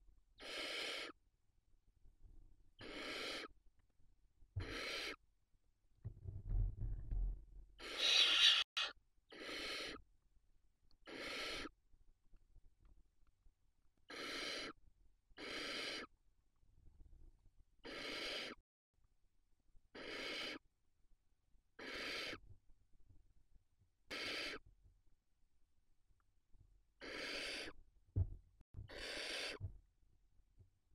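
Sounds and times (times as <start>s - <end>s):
owl chick hissing calls: 0.4s - 1.2s, 2.8s - 3.6s, 4.6s - 5.2s, 7.8s - 10.0s, 11.0s - 11.7s, 14.1s - 14.8s, 15.4s - 16.1s, 17.8s - 18.6s, 20.0s - 20.6s, 21.8s - 22.4s, 24.1s - 24.6s, 27.0s - 27.8s, 28.9s - 29.6s.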